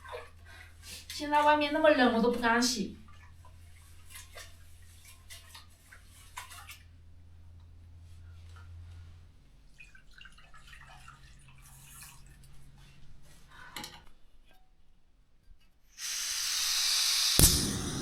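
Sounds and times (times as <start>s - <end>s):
gas stove hissing: 16.0s - 18.0s
sharp ignition click: 16.0s - 18.0s
burner rumble: 16.1s - 18.0s.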